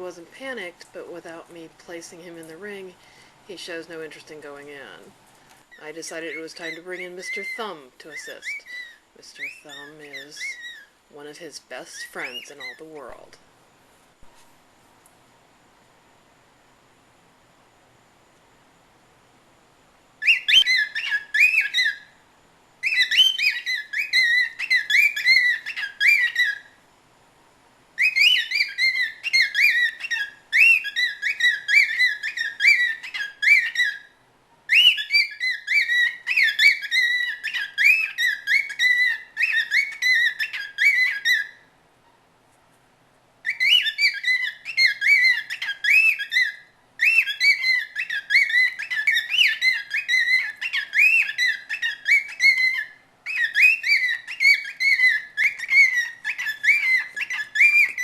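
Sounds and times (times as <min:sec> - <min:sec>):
cockatiel whistling: 0:06.4 - 0:10.9, 0:20.2 - 0:22.1, 0:22.8 - 0:26.7, 0:28.0 - 0:34.1, 0:34.7 - 0:41.6, 0:43.4 - 0:58.0.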